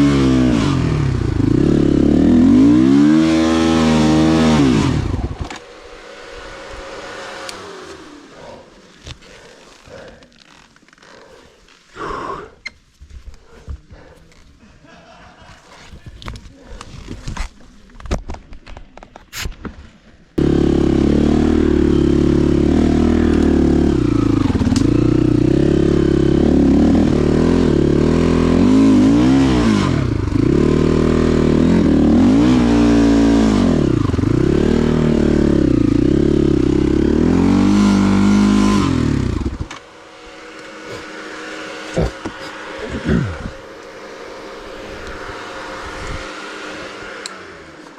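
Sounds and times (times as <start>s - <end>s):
motorcycle engine revving: 0.0s - 10.6s, 20.4s - 47.9s.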